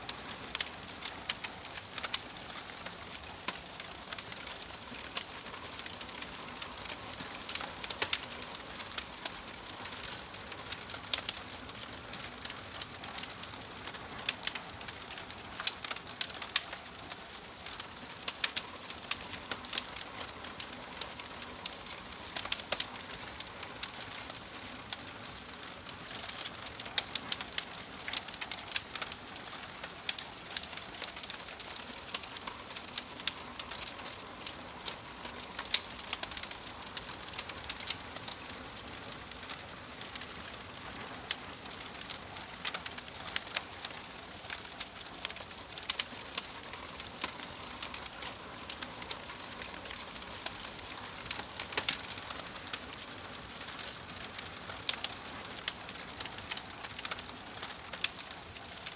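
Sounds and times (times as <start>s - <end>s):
wood fire crackling: 0.0s - 58.9s.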